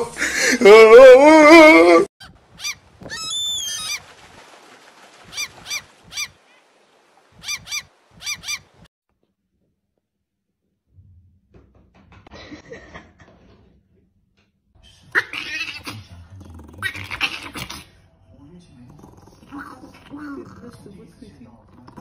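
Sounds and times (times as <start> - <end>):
bird honking calls: 5.2 - 6.4, 7.4 - 8.9.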